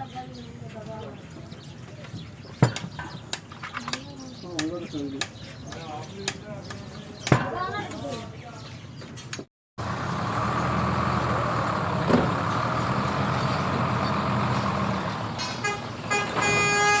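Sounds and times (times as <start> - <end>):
truck engine running: 9.8 - 17.0
truck horn toots: 15.4 - 17.0.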